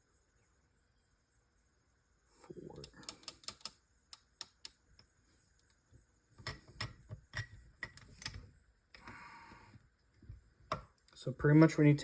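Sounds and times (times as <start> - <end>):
metal parts clicking and knocking: 2.8 - 4.8, 6.4 - 9.1.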